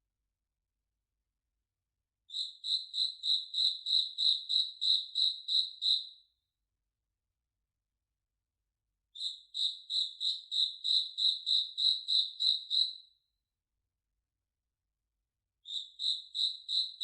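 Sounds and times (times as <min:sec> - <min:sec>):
high-pitched chirping call: 0:09.2 - 0:13.1, 0:15.7 - 0:17.0.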